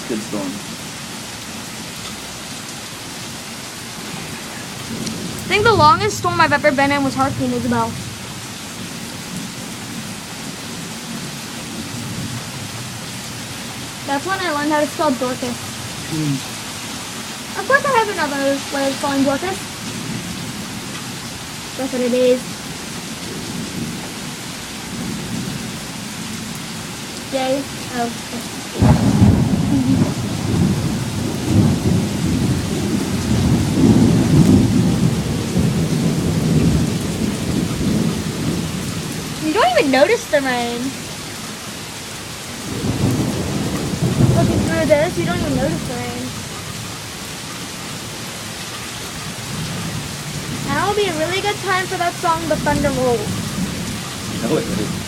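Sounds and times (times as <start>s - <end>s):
heavy rain falling: 0.0s - 55.0s
thunder rumbling: 4.0s - 10.1s, 11.1s - 16.4s, 17.5s - 20.8s, 27.2s - 41.1s, 42.5s - 46.6s, 49.3s - 55.0s.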